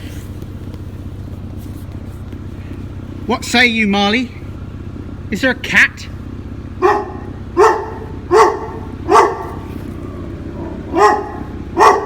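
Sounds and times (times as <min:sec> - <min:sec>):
dog barking: 0:06.8 - 0:12.0.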